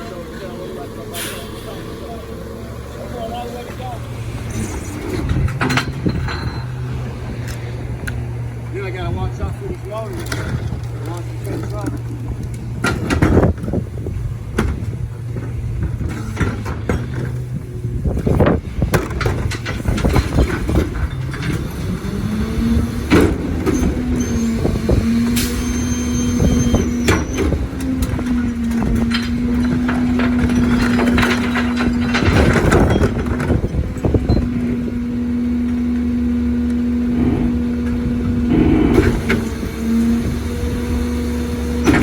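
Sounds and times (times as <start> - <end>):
truck engine running: 0.0 - 42.0
knocks and clatter: 3.8 - 25.4, 26.3 - 35.0
high squeal: 23.7 - 27.6.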